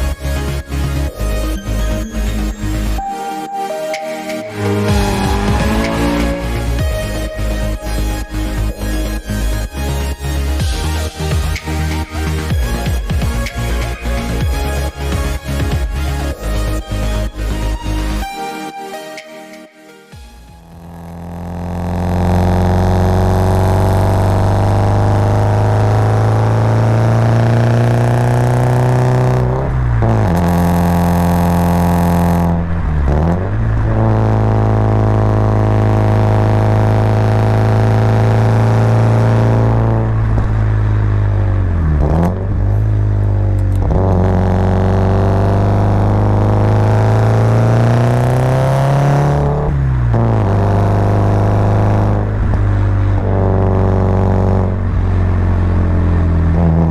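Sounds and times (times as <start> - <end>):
car engine pulling under load: 0.0 - 18.3, 20.5 - 56.9.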